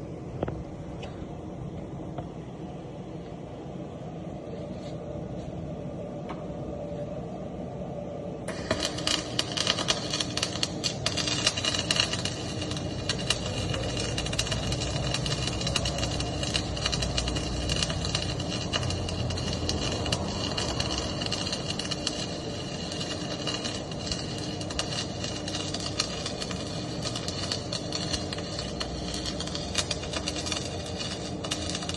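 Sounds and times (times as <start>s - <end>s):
low workshop hum: 0.0s - 31.9s
welding arc crackling: 8.5s - 31.9s.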